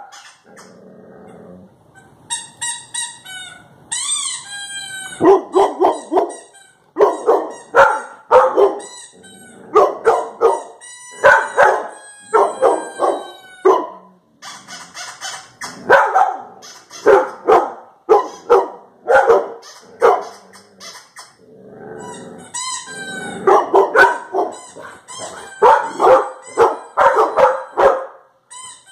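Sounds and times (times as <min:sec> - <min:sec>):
dog barking: 0:05.2 - 0:06.4, 0:07.0 - 0:08.9, 0:09.7 - 0:14.0, 0:15.9 - 0:20.4, 0:23.4 - 0:28.2.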